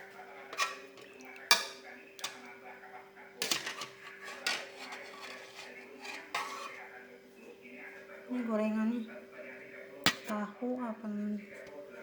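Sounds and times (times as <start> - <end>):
cutlery clinking against bowl: 0.4 - 2.6, 3.4 - 6.8, 10.1 - 10.3.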